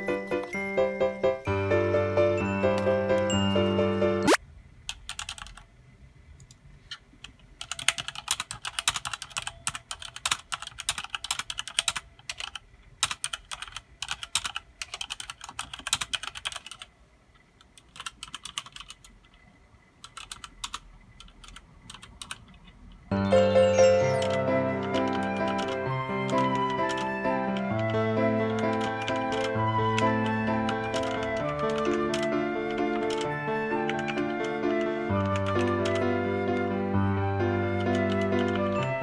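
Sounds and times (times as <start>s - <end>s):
music: 0.0s - 4.4s, 23.1s - 39.0s
mechanical keyboard typing: 4.3s - 5.7s, 7.2s - 16.9s, 17.6s - 19.4s, 20.0s - 36.7s, 37.7s - 38.8s.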